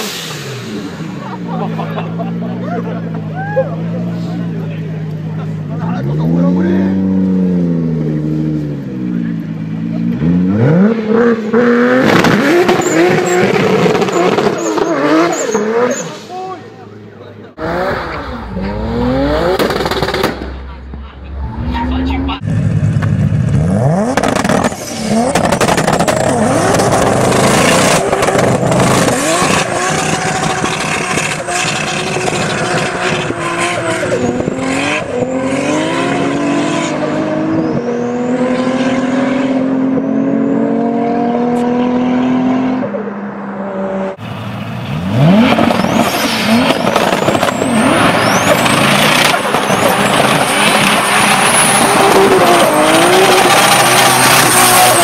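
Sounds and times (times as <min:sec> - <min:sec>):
car engines revving: 0:00.0 - 0:55.0
tyres spinning in burnouts: 0:23.9 - 0:37.8, 0:45.0 - 0:55.0.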